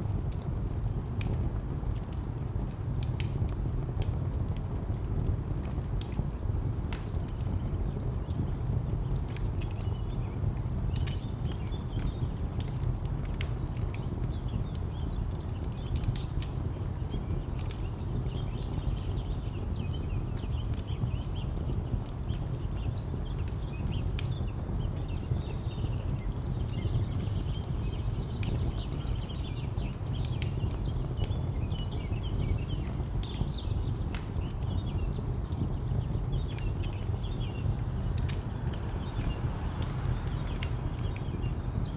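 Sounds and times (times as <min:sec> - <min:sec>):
wood fire crackling: 0:00.0 - 0:41.9
small birds chirping: 0:00.4 - 0:41.9
distant traffic rumble: 0:09.1 - 0:41.9.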